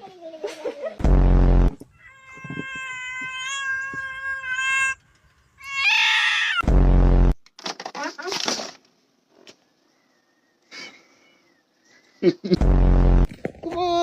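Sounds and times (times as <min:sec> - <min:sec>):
low buzzy blasts: 0:01.0 - 0:01.9, 0:06.6 - 0:07.4, 0:12.6 - 0:13.3
cat meowing: 0:02.0 - 0:05.0, 0:05.6 - 0:06.6.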